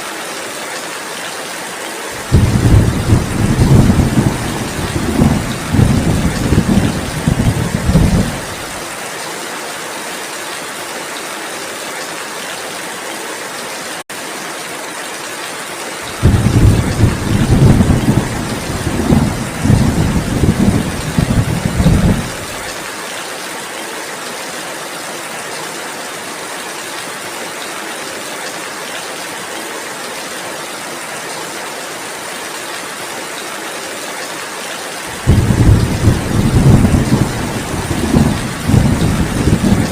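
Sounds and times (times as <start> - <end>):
heavy rain hissing: 2.0 - 9.1, 15.9 - 23.0, 35.0 - 39.9
rolling thunder: 2.2 - 8.8, 16.1 - 22.7, 35.2 - 39.9.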